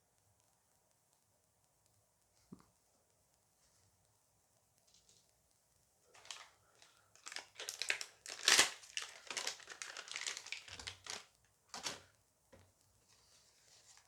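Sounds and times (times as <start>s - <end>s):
wrapper crinkling: 6.1s - 12.1s.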